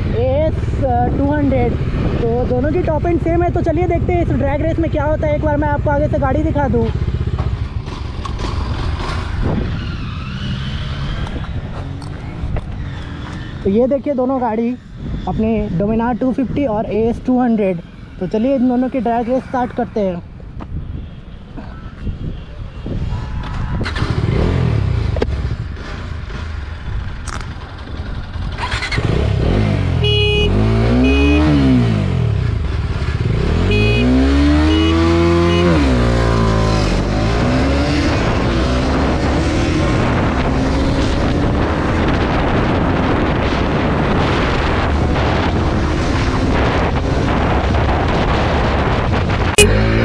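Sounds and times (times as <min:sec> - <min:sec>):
motorcycle engines accelerating: 0:00.0 - 0:50.0
steady rushing noise: 0:35.9 - 0:50.0.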